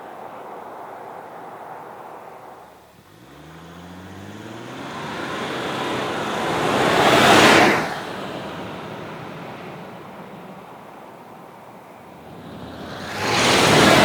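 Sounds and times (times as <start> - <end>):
tyre and wind rush: 0.0 - 3.3, 4.7 - 14.0
diesel engine accelerating: 3.0 - 10.1.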